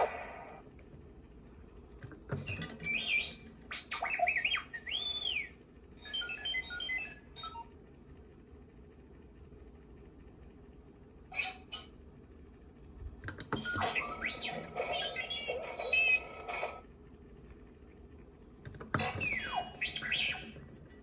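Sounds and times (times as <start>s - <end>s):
robot beeps and whistles from speaker: 2.4s - 7.7s, 13.6s - 16.8s, 19.0s - 20.6s.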